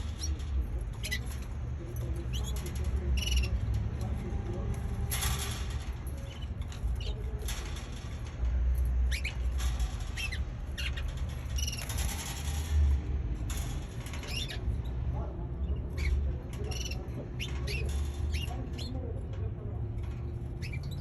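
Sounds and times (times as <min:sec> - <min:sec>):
baby canary chirping: 0:00.0 - 0:04.1, 0:09.0 - 0:12.2, 0:14.1 - 0:14.7, 0:15.8 - 0:19.0, 0:20.3 - 0:21.0.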